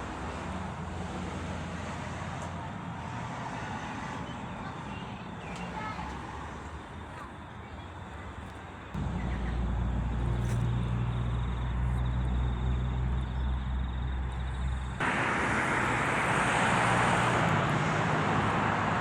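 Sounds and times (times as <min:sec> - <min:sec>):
train engine drone: 0:00.0 - 0:19.0
train rushing rumble: 0:08.7 - 0:19.0.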